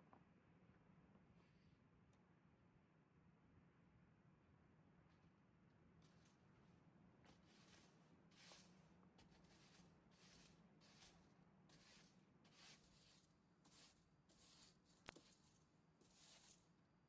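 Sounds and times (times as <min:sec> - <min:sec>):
faint short scraping: 0:07.3 - 0:16.7.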